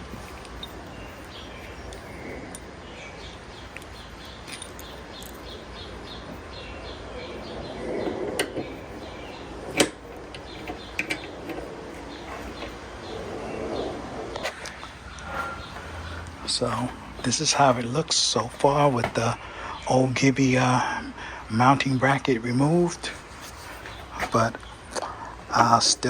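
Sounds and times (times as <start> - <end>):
metal brackets and screws handled: 0.0 - 6.4, 8.0 - 13.5
birds chirping: 0.0 - 26.0.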